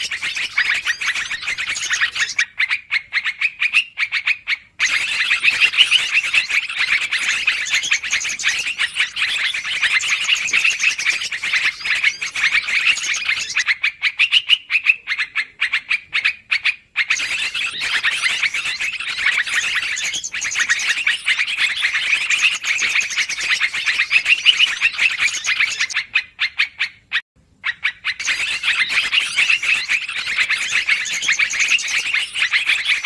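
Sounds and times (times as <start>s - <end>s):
bulbuls chattering: 0.0s - 2.4s, 4.8s - 13.6s, 17.1s - 26.1s.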